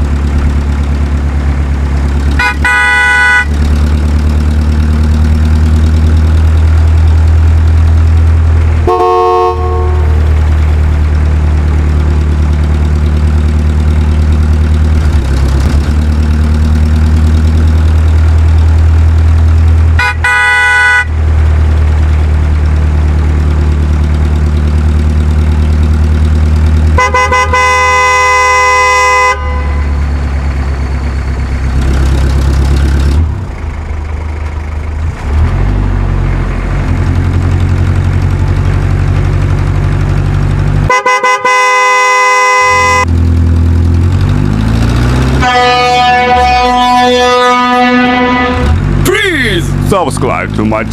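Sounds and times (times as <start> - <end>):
heavy vehicle engine drone: 0.0 - 50.9
vehicle horn honking: 2.4 - 3.6, 8.8 - 10.3, 20.0 - 21.2, 27.0 - 30.2, 40.9 - 43.1, 45.3 - 48.8.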